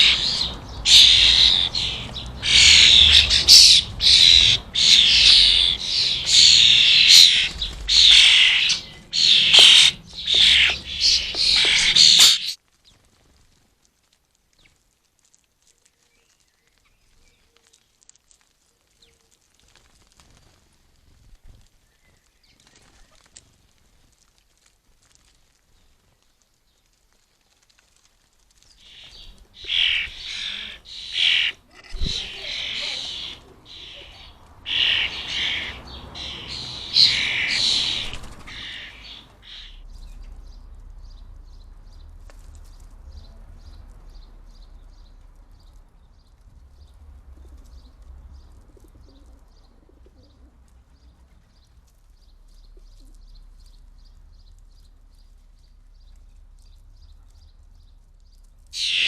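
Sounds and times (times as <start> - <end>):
small birds chirping: 0.0 - 13.0, 28.2 - 59.0.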